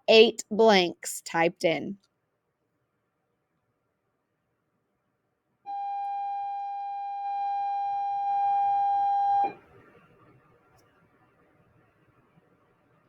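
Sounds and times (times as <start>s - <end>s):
long electronic beep: 5.7s - 9.6s.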